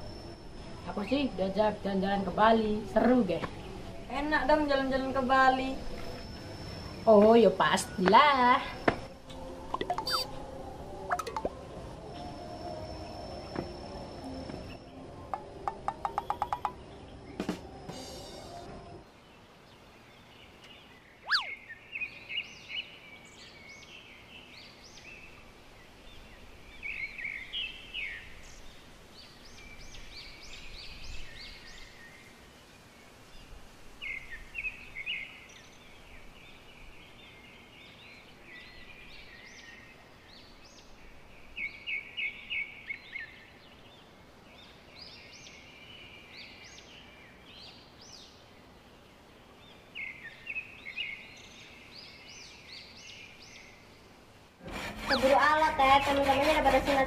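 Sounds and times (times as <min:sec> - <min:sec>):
birds chirping and trilling: 0:00.0 - 0:17.6, 0:18.2 - 0:32.4, 0:34.0 - 0:57.0
sharp downward-sweeping bird note: 0:09.8 - 0:10.4, 0:21.2 - 0:21.6.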